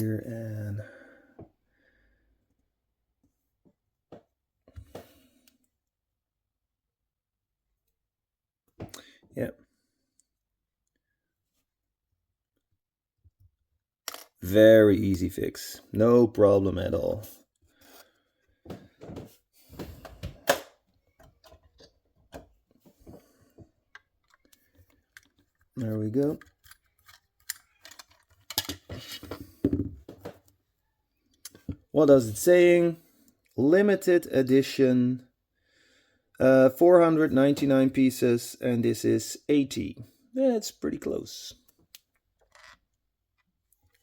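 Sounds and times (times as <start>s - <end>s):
faint clicks of small parts: 23.9s - 28.9s.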